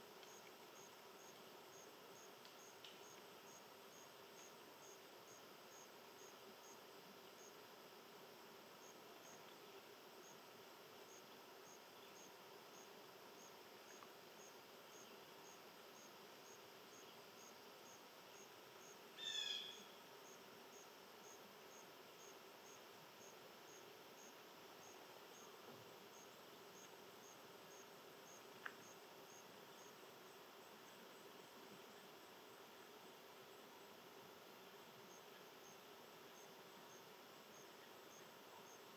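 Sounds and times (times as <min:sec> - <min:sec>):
insect chirping: 0:00.0 - 0:38.9.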